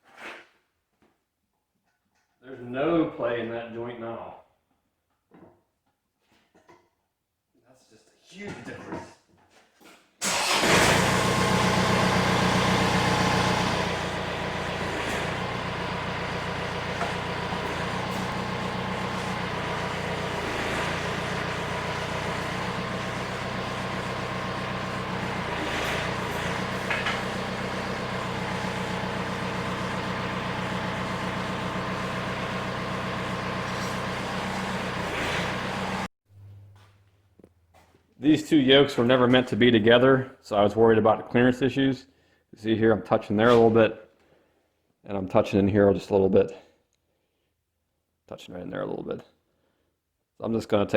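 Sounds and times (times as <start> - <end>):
tractor engine idling: 10.2 - 36.1.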